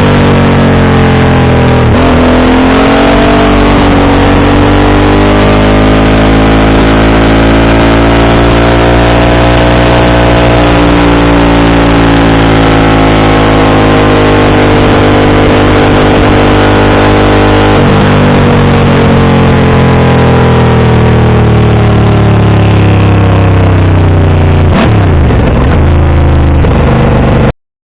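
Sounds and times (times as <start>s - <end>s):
motorcycle engine running: 0.0s - 27.5s.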